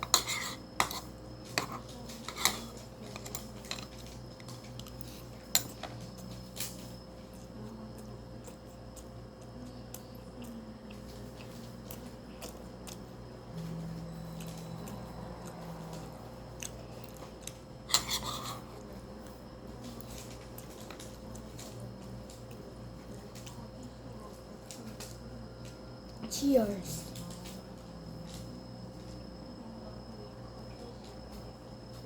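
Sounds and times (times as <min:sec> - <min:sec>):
faint steady hum: 0:00.0 - 0:32.0
person chewing food: 0:03.9 - 0:06.4, 0:07.3 - 0:18.9.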